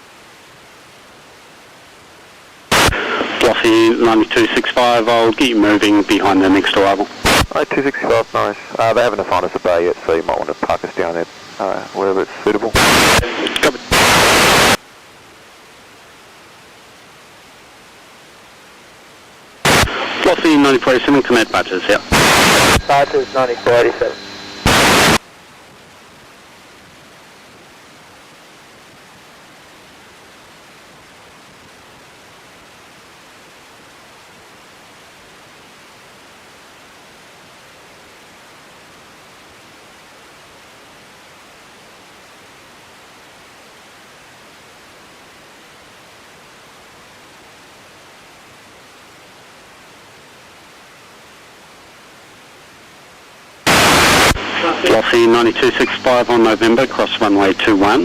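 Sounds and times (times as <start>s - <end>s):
steady radio hiss: 0.0s - 58.0s
radio static burst: 2.7s - 14.8s, 19.6s - 25.2s, 53.6s - 58.0s.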